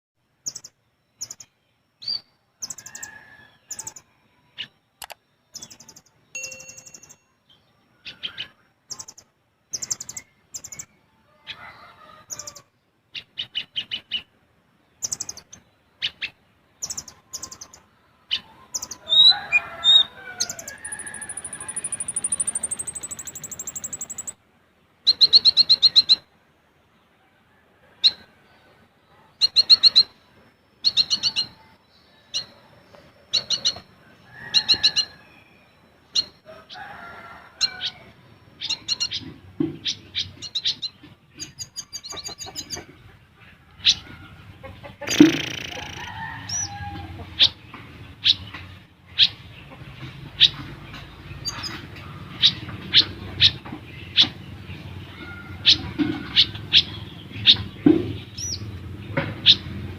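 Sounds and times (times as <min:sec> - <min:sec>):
sunbird chirping and trilling: 0:00.4 - 0:11.1, 0:14.9 - 0:24.4, 0:25.0 - 0:26.3, 0:29.4 - 0:32.6, 0:33.3 - 0:36.5, 0:37.6 - 0:42.8, 0:45.0 - 0:49.6, 0:50.3 - 0:59.9.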